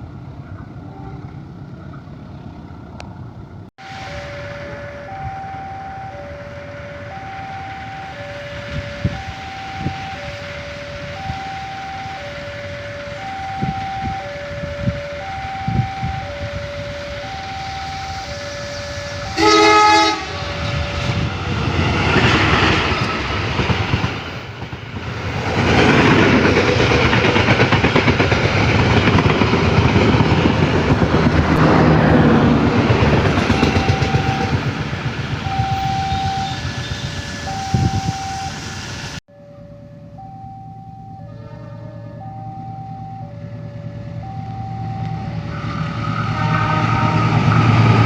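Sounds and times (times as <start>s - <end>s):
train rumble and wheel clatter: 0.0s - 3.7s, 4.4s - 39.2s, 41.6s - 48.0s
locomotive horn blast: 3.8s - 21.6s, 41.0s - 44.4s, 45.0s - 48.0s
two-tone crossing alarm: 3.8s - 23.0s, 33.0s - 34.8s, 35.4s - 48.0s.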